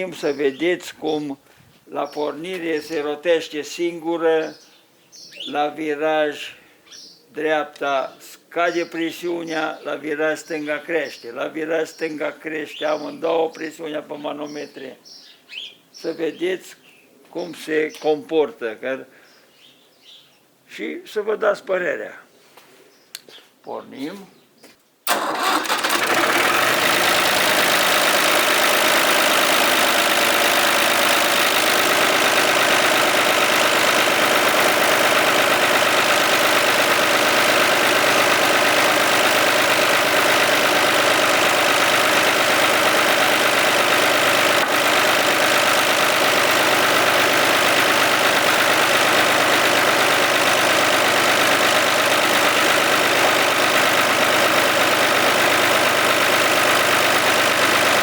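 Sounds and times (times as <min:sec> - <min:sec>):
hydraulic pump running: 0:25.1 - 0:58.0.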